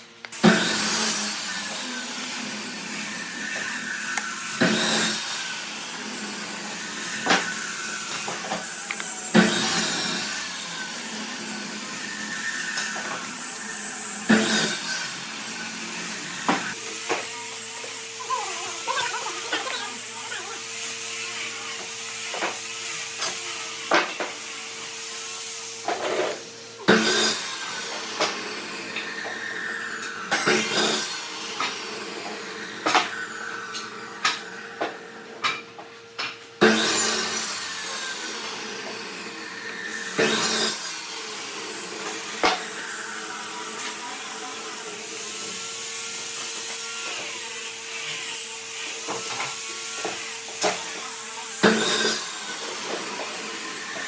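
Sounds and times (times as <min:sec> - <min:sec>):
wood grinding or sanding: 0:00.0 - 0:28.4
power tool motor whine: 0:00.0 - 0:54.0.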